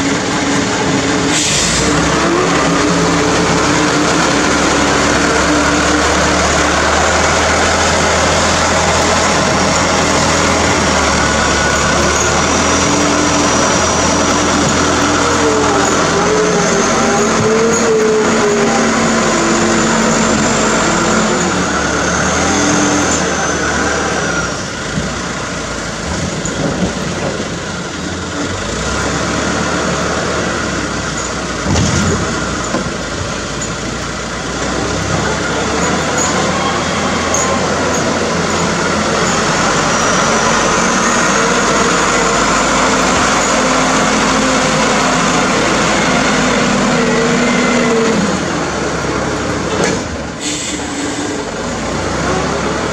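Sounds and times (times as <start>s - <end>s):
truck diesel engine running: 0.0s - 52.9s.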